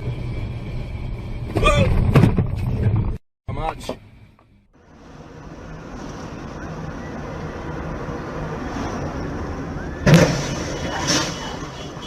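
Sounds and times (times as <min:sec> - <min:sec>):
car engine and road noise: 0:00.0 - 0:12.0
vehicle collision bang: 0:10.0 - 0:11.6.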